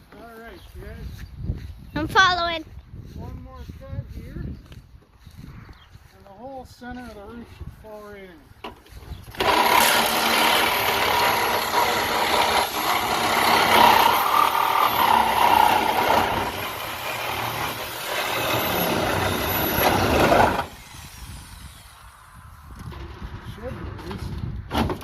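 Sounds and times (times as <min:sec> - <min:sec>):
reciprocating saw cutting sheet metal: 0:09.3 - 0:22.3.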